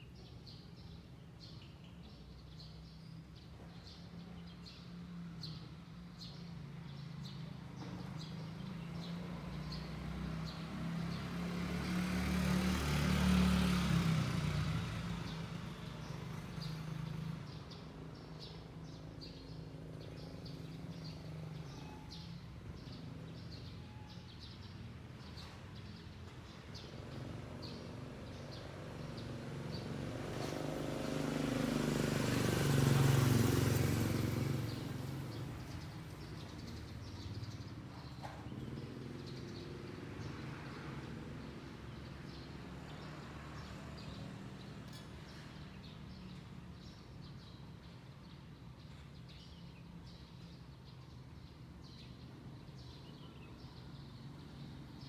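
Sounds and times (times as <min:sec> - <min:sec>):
small birds chirping: 0:06.2 - 0:12.0, 0:15.0 - 0:55.0
vehicle passing: 0:09.0 - 0:15.8, 0:27.2 - 0:36.2.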